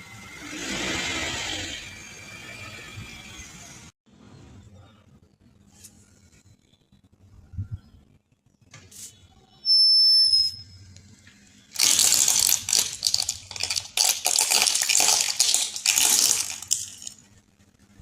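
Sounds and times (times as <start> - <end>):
brittle objects crunching: 11.7 - 17.2.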